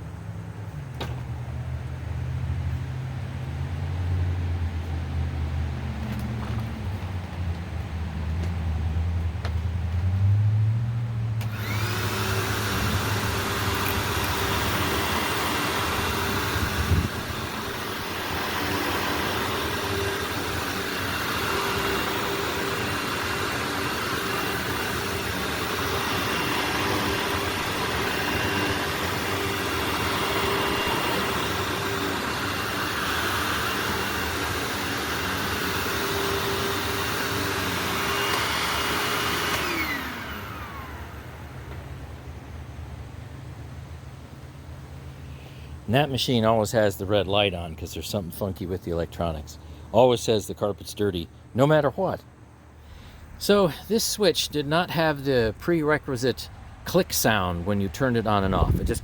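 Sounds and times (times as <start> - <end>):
vacuum cleaner motor whine: 11.4 - 42.4.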